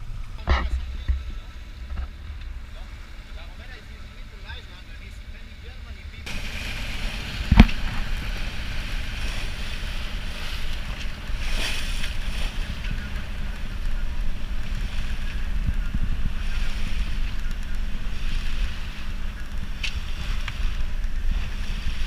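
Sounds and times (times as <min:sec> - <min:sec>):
steady low rumble: 0:00.0 - 0:22.0
water noise: 0:00.0 - 0:22.0
wind buffeting microphone: 0:06.1 - 0:22.0.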